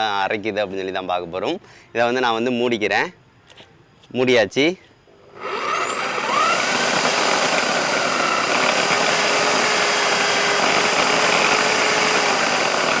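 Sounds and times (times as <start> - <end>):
mixer grinder whining: 5.3 - 13.0.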